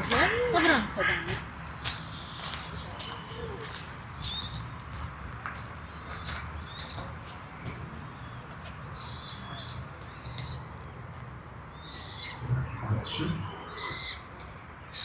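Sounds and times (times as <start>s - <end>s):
small birds chirping: 0.0s - 15.0s
low rumble: 12.3s - 13.8s.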